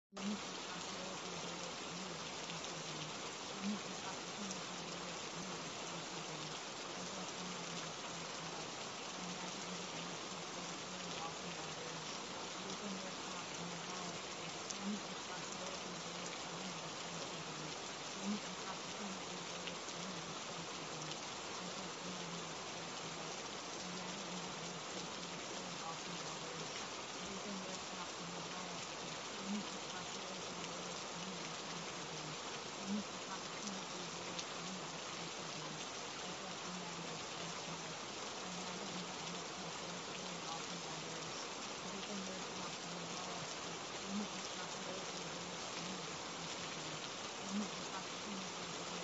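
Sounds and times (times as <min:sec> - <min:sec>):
steady rain falling: 0:00.0 - 0:49.0.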